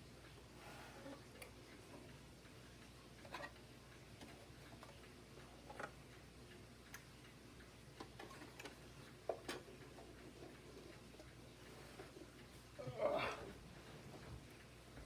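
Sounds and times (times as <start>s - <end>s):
plastic parts clicking and tapping: 8.0s - 10.6s.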